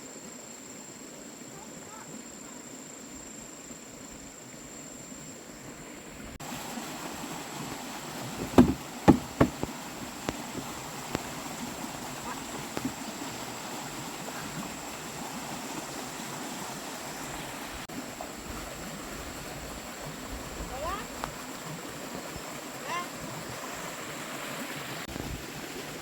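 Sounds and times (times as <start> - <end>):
sharp knocks: 8.3 - 9.7
light taps: 8.4 - 9.7.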